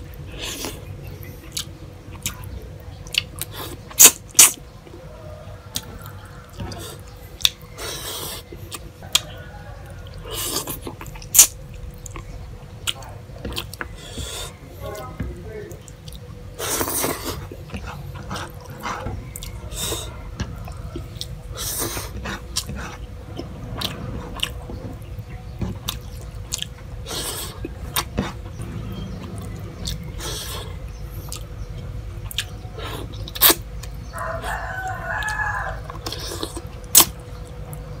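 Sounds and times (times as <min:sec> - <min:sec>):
wet chewing and lip-smacking: 0:00.1 - 0:04.6, 0:05.7 - 0:15.1, 0:15.7 - 0:28.6, 0:29.2 - 0:34.5
rooster crowing: 0:05.0 - 0:07.0, 0:09.0 - 0:10.6, 0:19.2 - 0:21.4, 0:34.0 - 0:36.2.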